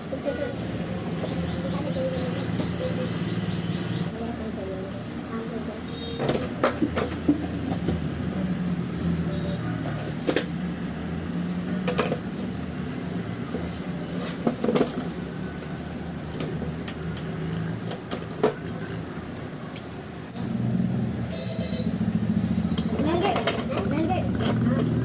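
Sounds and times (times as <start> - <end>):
low engine hum: 6.4 - 25.0.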